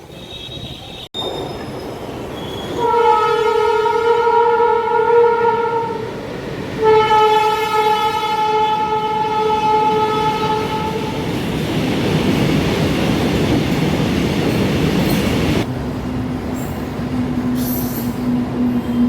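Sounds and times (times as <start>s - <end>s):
train rumbling past: 0.0s - 19.0s
locomotive horn blast: 2.8s - 6.1s, 6.8s - 11.2s.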